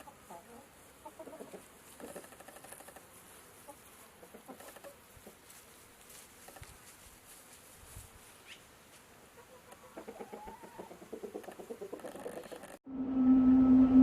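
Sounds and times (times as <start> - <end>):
chickens clucking: 0.0 - 5.6, 9.3 - 12.8.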